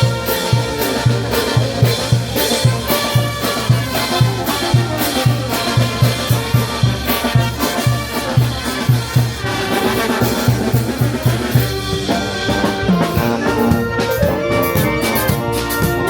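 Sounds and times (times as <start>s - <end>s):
brass band playing: 0.0s - 16.0s.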